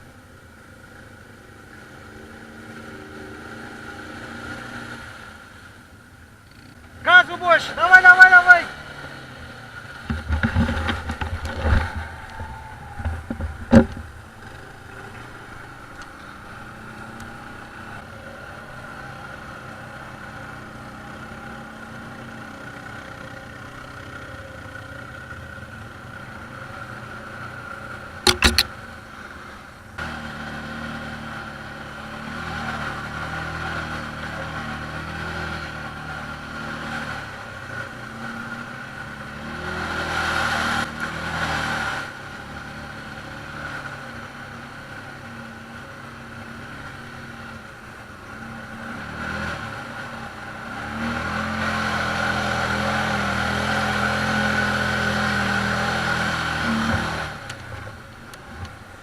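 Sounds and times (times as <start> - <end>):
atv engines revving: 0.0 - 5.8, 6.4 - 59.0
sharp knock: 28.3 - 28.7.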